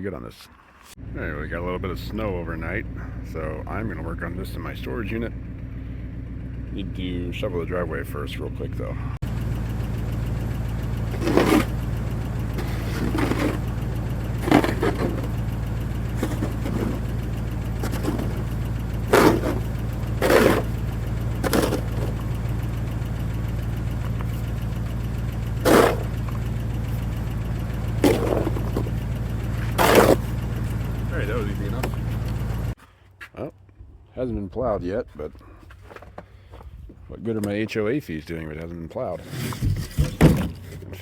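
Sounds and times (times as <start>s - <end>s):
steady low hum: 8.0s - 32.8s
snow shovel scraping pavement: 11.0s - 22.5s, 25.4s - 32.3s, 39.1s - 40.8s.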